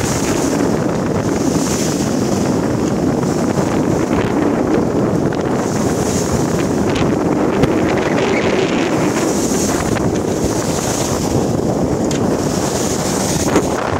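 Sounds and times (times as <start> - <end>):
sea rushing along hull: 0.0 - 13.9
wind buffeting microphone: 0.0 - 13.9.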